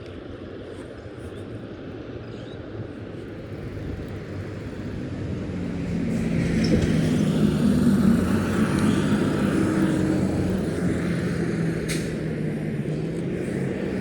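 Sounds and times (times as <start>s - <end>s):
engine drone: 3.1s - 14.0s.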